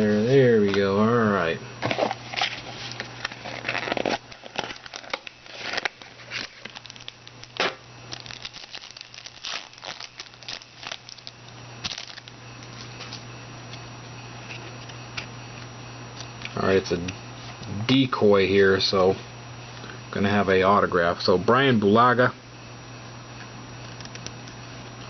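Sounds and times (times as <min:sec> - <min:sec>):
low electrical hum: 0:00.0 - 0:25.0
cards rustling: 0:01.8 - 0:13.2
plastic wrapper crinkling: 0:02.1 - 0:13.2.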